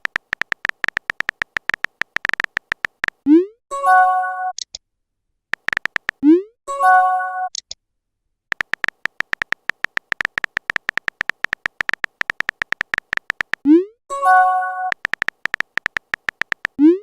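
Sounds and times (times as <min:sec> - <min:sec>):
keyboard taps: 0:00.0 - 0:03.2, 0:05.6 - 0:06.2, 0:08.5 - 0:13.6, 0:14.9 - 0:16.8
rapid keyboard clicks: 0:00.0 - 0:03.2, 0:05.6 - 0:06.2, 0:08.5 - 0:13.7, 0:14.9 - 0:16.8.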